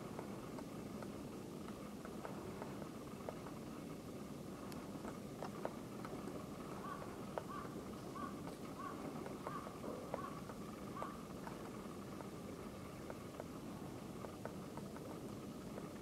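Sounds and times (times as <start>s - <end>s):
woodpecker tapping on wood: 6.8s - 12.3s.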